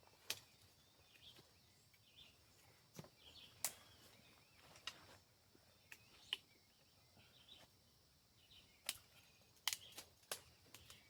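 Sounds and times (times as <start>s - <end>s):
faint bird chirps: 0.0s - 11.0s
high insect hum: 0.0s - 11.0s
dry sticks snapping: 0.2s - 0.5s, 8.8s - 11.0s.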